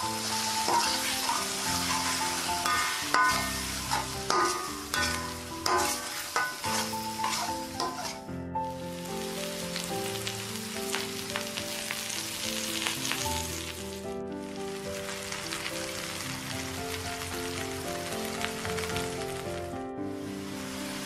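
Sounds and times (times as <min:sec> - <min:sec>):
eggs sizzling in a wok: 0:00.0 - 0:21.0
instrumental music: 0:00.0 - 0:21.0
metal spatula scraping a wok: 0:00.3 - 0:08.3.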